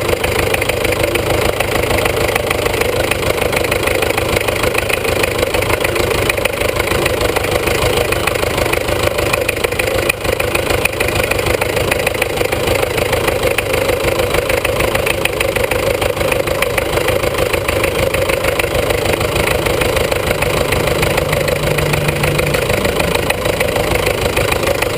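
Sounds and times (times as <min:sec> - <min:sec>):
tractor engine running: 0:00.0 - 0:24.9
steady hum: 0:20.0 - 0:24.9.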